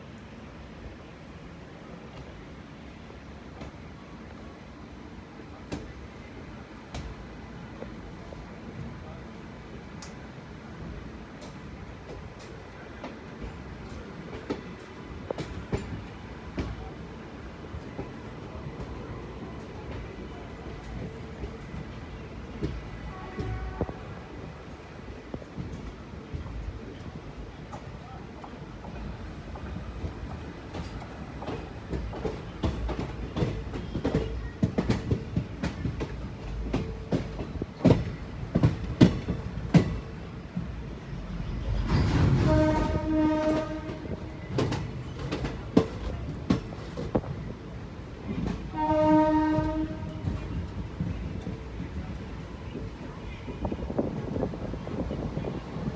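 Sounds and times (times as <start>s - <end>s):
train wheels clacking over rail joints: 11.4s - 16.9s, 25.4s - 52.3s
locomotive low rumble: 17.8s - 55.9s.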